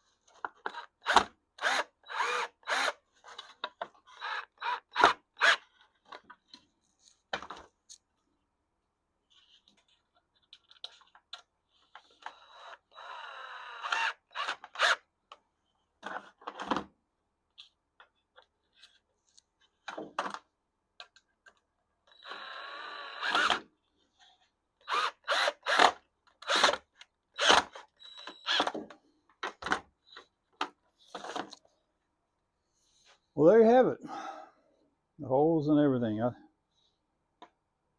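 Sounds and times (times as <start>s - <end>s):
power drill running: 0.7s - 3.0s, 12.2s - 15.0s, 22.1s - 23.6s, 24.8s - 26.8s.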